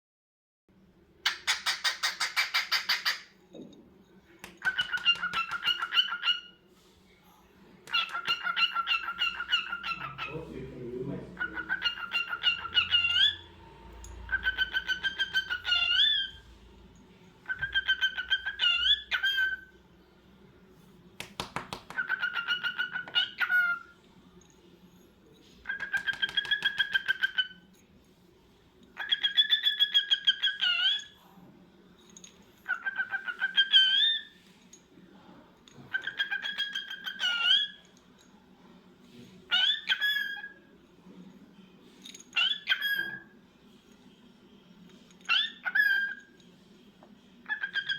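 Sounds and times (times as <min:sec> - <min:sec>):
cockatiel chirping call: 0:01.2 - 0:03.3, 0:04.6 - 0:06.6, 0:07.9 - 0:10.4, 0:11.4 - 0:13.4, 0:14.3 - 0:16.4, 0:17.4 - 0:19.7, 0:21.8 - 0:23.9, 0:25.6 - 0:27.6, 0:29.0 - 0:31.1, 0:32.6 - 0:34.3, 0:35.9 - 0:37.8, 0:39.5 - 0:40.6, 0:42.4 - 0:43.3, 0:45.3 - 0:46.2, 0:47.4 - 0:47.9.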